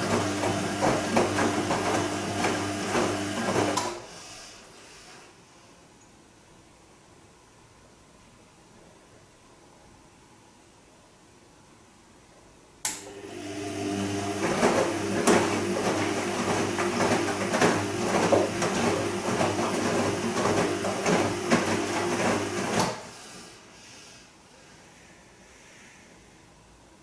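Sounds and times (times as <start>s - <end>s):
washing machine motor hum: 0.0s - 4.1s, 13.0s - 23.7s.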